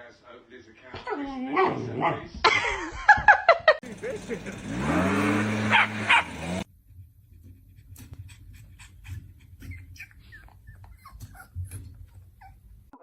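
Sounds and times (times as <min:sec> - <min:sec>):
dog whimpering: 0:08.8 - 0:13.0.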